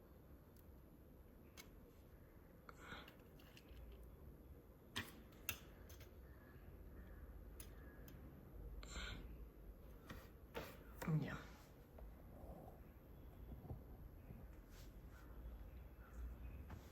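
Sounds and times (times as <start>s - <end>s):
soft rustle: 14.2s - 16.9s.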